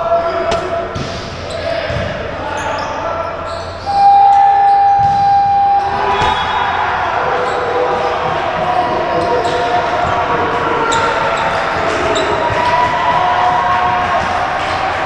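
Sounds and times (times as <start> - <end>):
basketballs bouncing: 0.0 - 2.8, 4.9 - 15.0
crowd hubbub: 0.0 - 15.0
shoe squeaks: 0.2 - 7.8.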